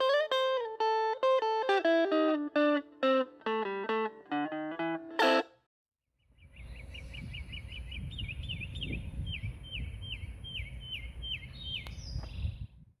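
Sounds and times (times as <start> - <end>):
songbird chirping: 6.2 - 12.8
low wind rumble: 6.4 - 12.9.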